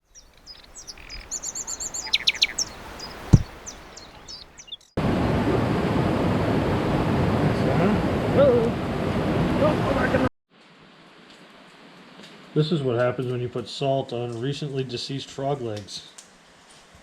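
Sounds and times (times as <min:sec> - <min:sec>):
songbirds chirping and trilling: 0:00.0 - 0:05.0
stream flowing: 0:00.0 - 0:10.0.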